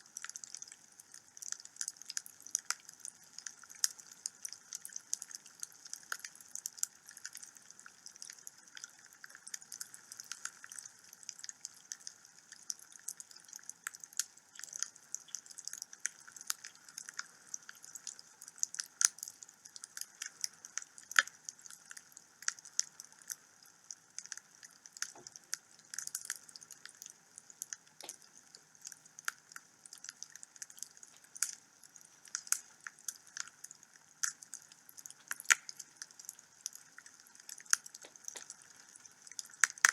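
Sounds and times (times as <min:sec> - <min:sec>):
wood fire crackling: 0:24.1 - 0:39.9.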